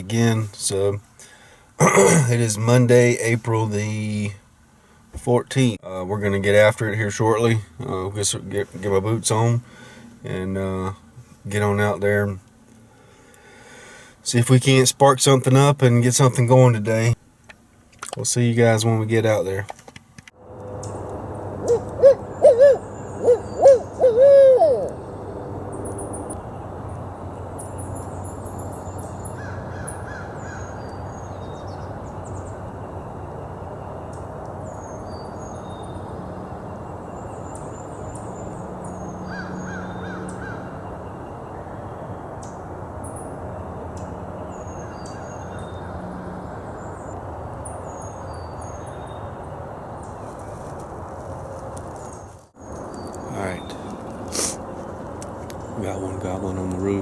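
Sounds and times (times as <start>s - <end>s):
owl hooting: 21.6s - 26.4s, 29.4s - 30.8s, 38.9s - 41.0s.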